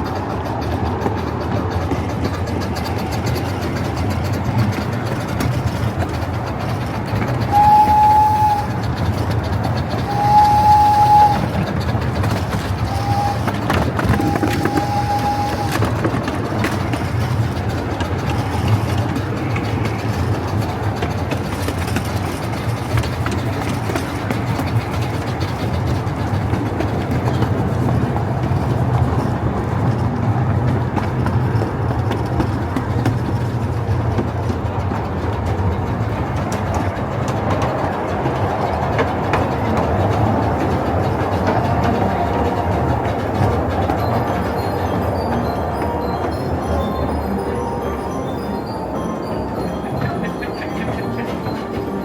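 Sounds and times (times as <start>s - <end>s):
train rumbling: 0.0s - 52.0s
steam locomotive whistle blasts: 7.4s - 9.2s, 9.8s - 16.3s.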